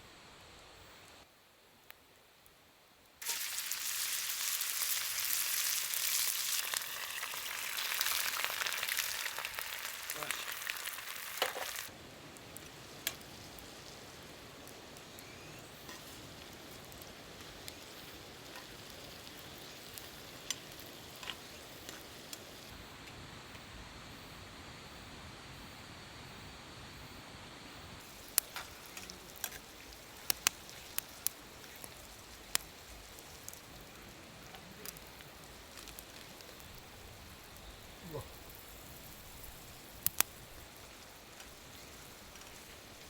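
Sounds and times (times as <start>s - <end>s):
food sizzling in a skillet: 3.2s - 22.8s, 28.0s - 43.0s
small pops and ticks: 6.6s - 23.2s, 28.0s - 43.0s.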